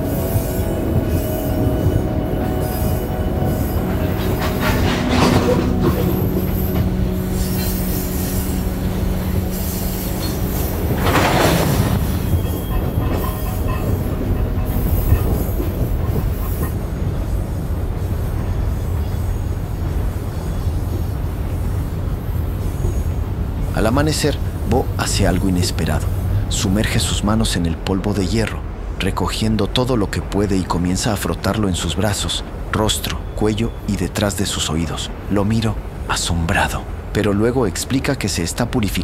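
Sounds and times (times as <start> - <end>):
metallic wheel squealing: 0.0 - 23.2
freight train rumbling: 0.0 - 39.0
grinding screech: 0.1 - 17.4.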